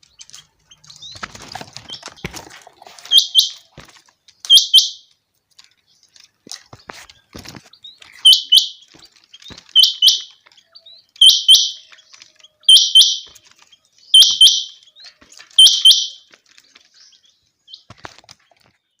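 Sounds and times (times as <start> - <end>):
quail calling: 3.0 - 3.8, 4.5 - 5.1, 8.1 - 13.4, 14.1 - 16.3.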